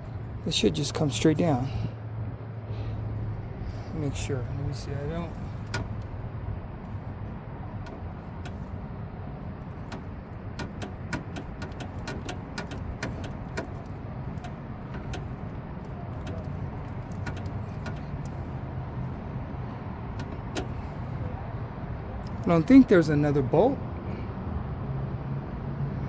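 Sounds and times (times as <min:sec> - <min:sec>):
hand tool clicks and metallic knocks: 0:05.3 - 0:06.1, 0:07.8 - 0:08.7, 0:09.6 - 0:18.4, 0:20.2 - 0:20.9.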